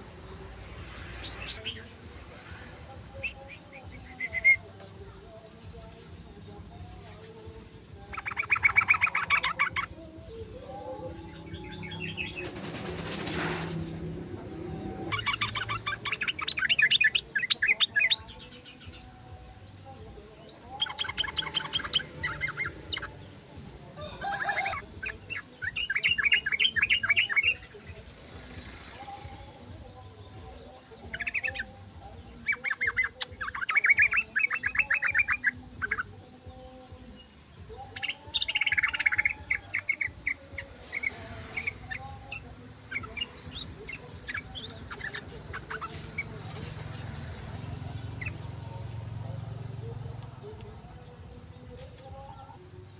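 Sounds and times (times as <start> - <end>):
bird bubbly chattering song: 8.0 - 10.0, 10.6 - 13.1, 14.9 - 18.2, 20.8 - 23.2, 24.4 - 27.7, 31.1 - 36.1, 37.9 - 50.2.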